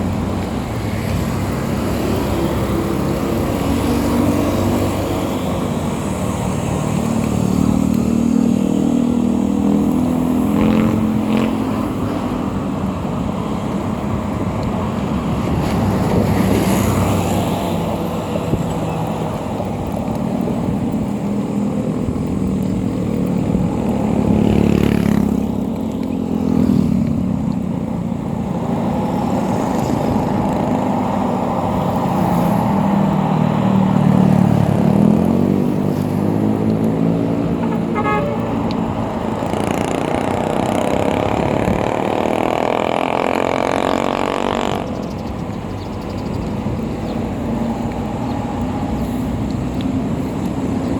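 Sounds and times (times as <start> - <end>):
wind and road noise: 0.0 - 50.9
motorcycle engine revving: 0.9 - 12.3, 29.2 - 45.5.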